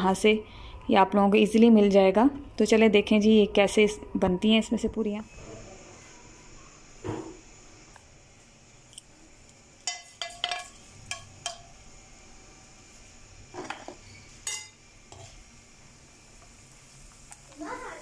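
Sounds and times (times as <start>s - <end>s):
food sizzling in hot oil: 5.2s - 18.0s.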